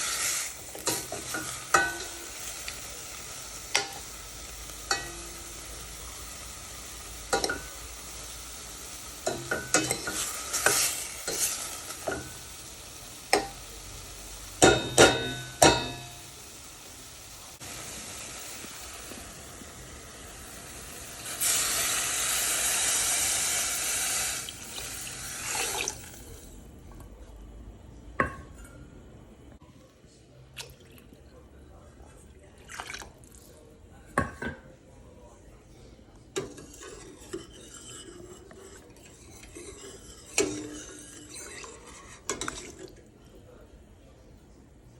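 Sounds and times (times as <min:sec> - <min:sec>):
chicken sizzling in oil: 0:00.0 - 0:26.3
utensil scraping pan: 0:36.4 - 0:42.6.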